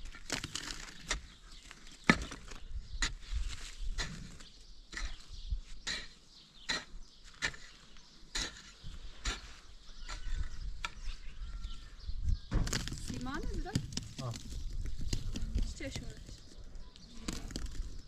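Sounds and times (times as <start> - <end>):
hand tool striking hard material: 5.8 - 11.0.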